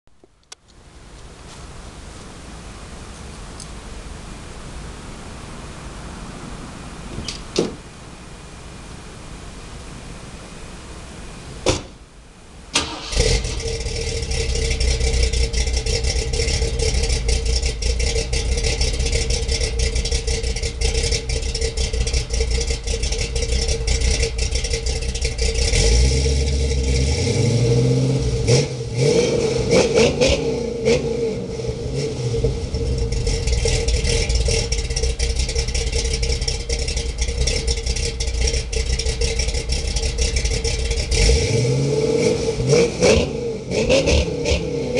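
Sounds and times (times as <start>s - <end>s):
car engine starting and idling: 0.2s - 44.9s.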